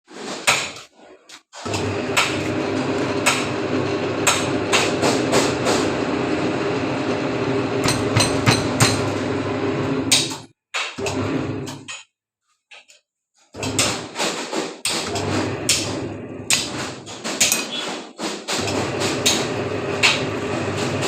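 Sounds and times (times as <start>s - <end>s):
bending machine motor humming: 1.7s - 10.1s, 15.1s - 17.2s, 18.6s - 21.0s.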